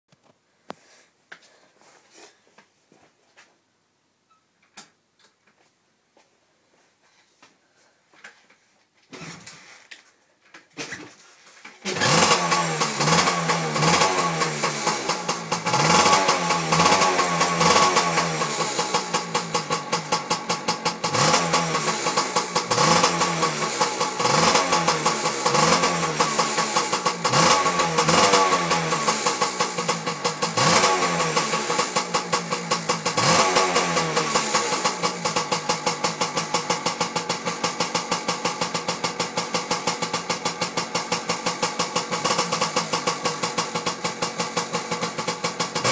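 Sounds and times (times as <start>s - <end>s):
two-stroke engine revving: 11.8s - 45.9s.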